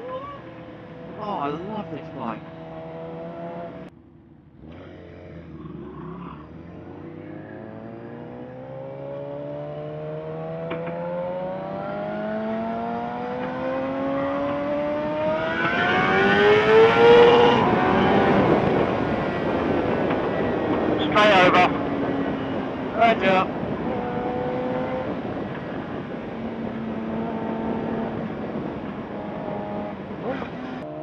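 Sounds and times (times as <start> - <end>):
motorcycle engine accelerating: 0.4 - 31.0
wind rush: 13.5 - 30.7.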